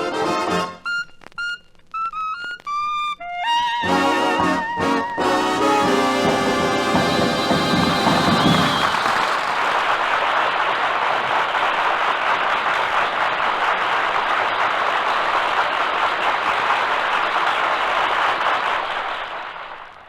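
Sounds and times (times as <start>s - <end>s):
audience applauding: 3.8s - 20.0s.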